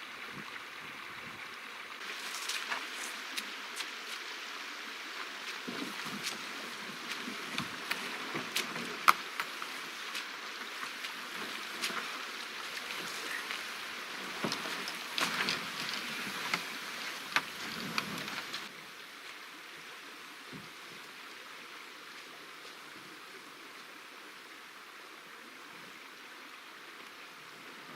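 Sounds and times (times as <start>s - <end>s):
water splashing around canoe: 5.0s - 18.7s
small sharp ticks and drips: 5.2s - 19.5s.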